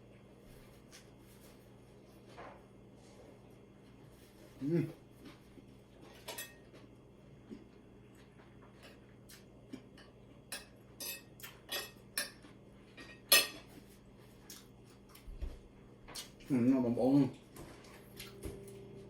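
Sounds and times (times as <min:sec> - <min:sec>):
cutlery and dishes clinking: 0:06.2 - 0:06.7, 0:10.0 - 0:13.8.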